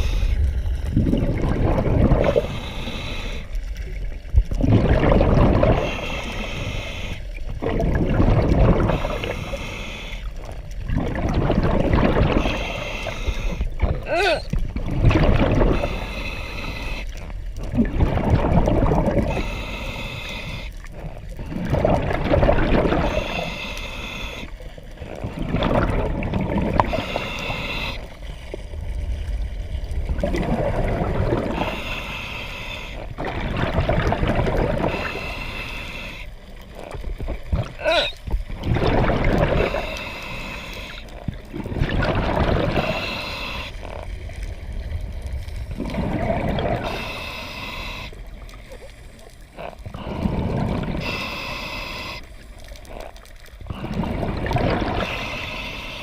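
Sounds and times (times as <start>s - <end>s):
rush of exhaled bubbles: 0.0s - 9.6s, 10.2s - 19.6s, 20.5s - 23.6s, 25.0s - 32.0s, 33.0s - 36.2s, 36.8s - 48.9s, 49.5s - 55.6s
hissing regulator inhale: 2.2s - 3.6s, 5.8s - 7.4s, 8.9s - 10.5s, 12.4s - 13.7s, 15.7s - 17.3s, 19.2s - 20.9s, 23.0s - 24.8s, 26.8s - 28.5s, 31.4s - 33.1s, 34.8s - 36.5s, 39.6s - 41.2s, 42.7s - 44.0s, 46.8s - 53.1s, 54.9s - 56.0s.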